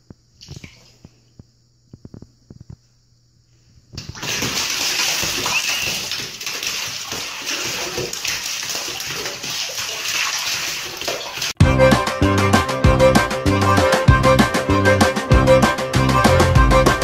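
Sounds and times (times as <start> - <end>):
cat splashing in a tub: 4.0 - 11.6
water gushing into a bathtub: 4.0 - 11.6.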